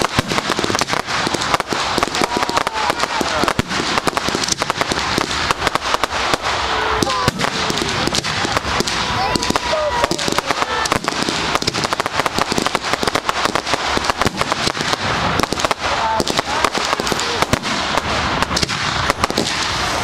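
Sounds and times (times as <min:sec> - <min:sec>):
fireworks crackling and banging: 0:00.0 - 0:20.0
whistling fireworks: 0:00.0 - 0:20.0.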